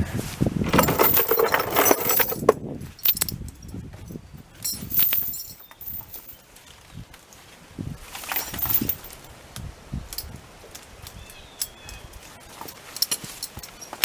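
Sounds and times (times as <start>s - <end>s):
steel chain clinking and rattling: 0.7s - 6.4s, 8.2s - 9.3s, 11.6s - 14.0s.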